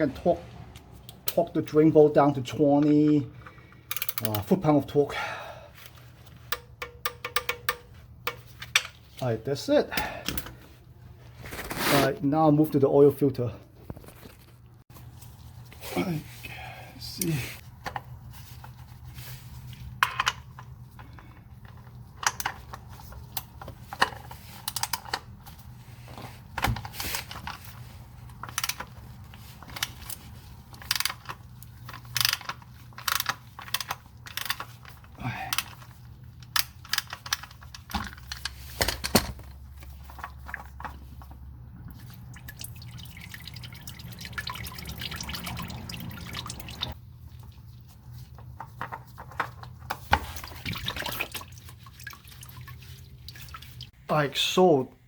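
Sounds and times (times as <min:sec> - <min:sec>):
oil trickling: 0:39.6 - 0:48.4, 0:50.2 - 0:54.0
oil dripping into a pan: 0:41.9 - 0:47.0.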